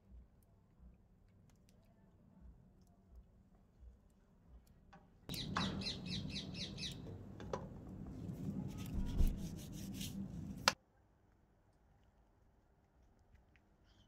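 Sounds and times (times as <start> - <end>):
bird harsh chirps: 5.3 - 7.4
steady low hum: 5.3 - 10.8.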